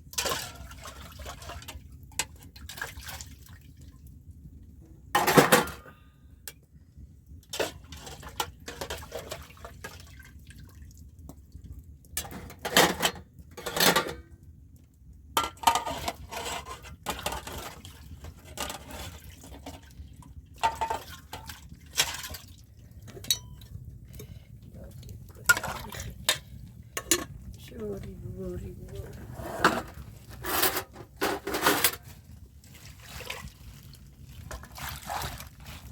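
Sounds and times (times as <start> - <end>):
pots and dishes clattering: 5.2 - 6.0, 12.2 - 14.3, 15.4 - 19.8, 20.6 - 24.4, 25.3 - 27.4, 29.2 - 32.1.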